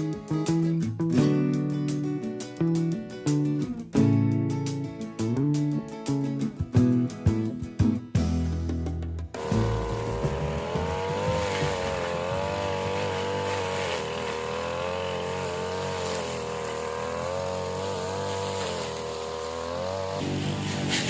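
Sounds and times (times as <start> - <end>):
guitar music: 0.0 - 21.0
lawn mower engine running: 9.4 - 21.0.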